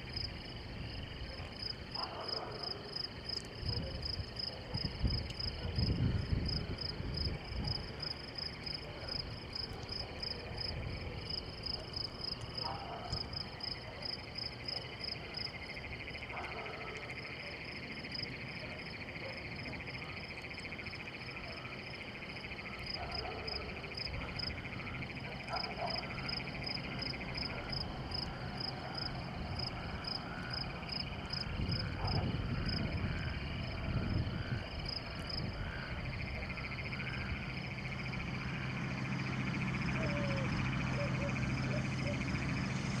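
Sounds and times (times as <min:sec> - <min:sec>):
frogs and insects chirping: 0:00.0 - 0:43.0
steady low hum: 0:24.0 - 0:43.0.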